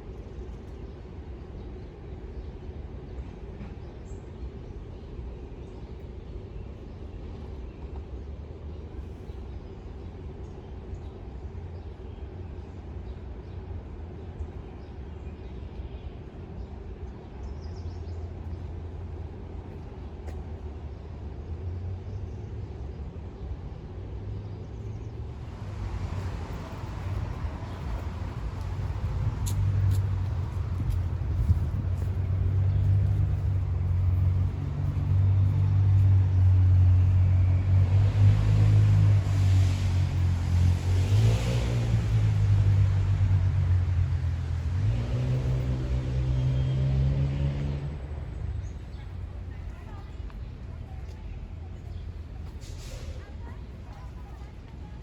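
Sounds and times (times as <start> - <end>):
city traffic rumble: 0.0 - 55.0.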